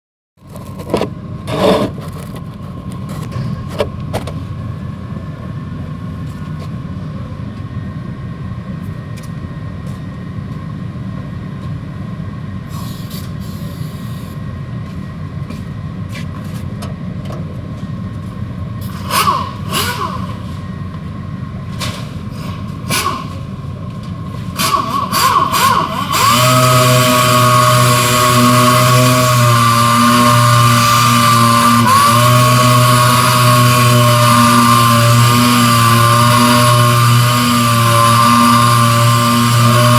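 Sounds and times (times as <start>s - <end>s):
knocks and scrapes on panel: 0.5s - 4.4s
electric sander whining: 24.6s - 39.9s.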